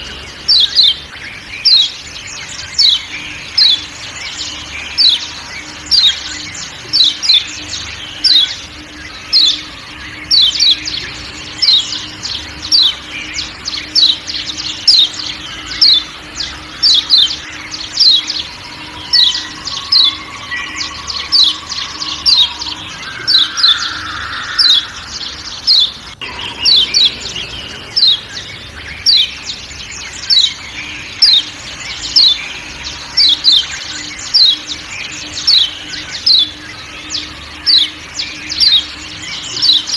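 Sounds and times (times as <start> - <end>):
bird sharp chirping calls: 0.0 - 39.9
forest background: 0.0 - 39.9.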